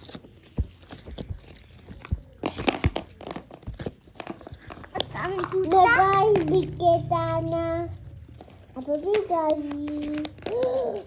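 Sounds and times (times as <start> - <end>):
hands squishing dough and slime: 0.0 - 6.9
crinkling clicks and crackles: 0.0 - 11.0.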